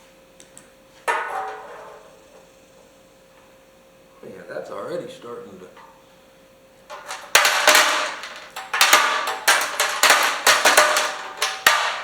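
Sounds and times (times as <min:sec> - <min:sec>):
metal parts clanging in steel tank: 0:01.1 - 0:02.3, 0:06.9 - 0:12.0.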